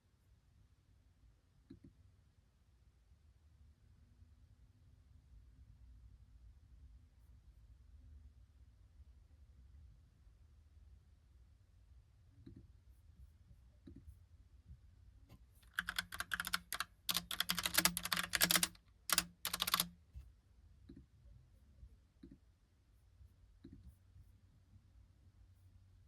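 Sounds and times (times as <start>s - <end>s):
mechanical keyboard typing: 15.6s - 19.9s.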